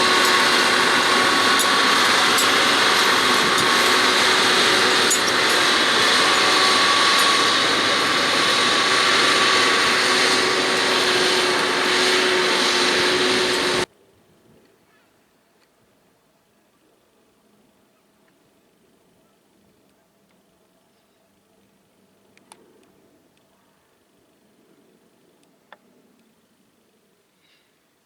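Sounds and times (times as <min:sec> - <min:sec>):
tractor engine running under load: 0:00.0 - 0:13.9.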